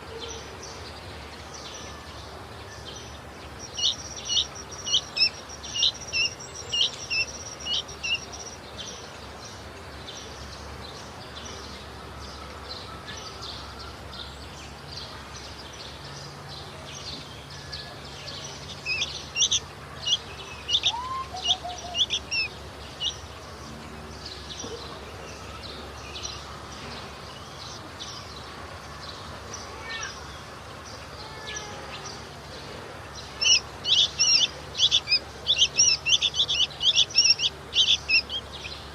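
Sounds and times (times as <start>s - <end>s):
bird chirping sharply: 3.6s - 8.6s, 18.6s - 23.3s, 33.1s - 38.9s.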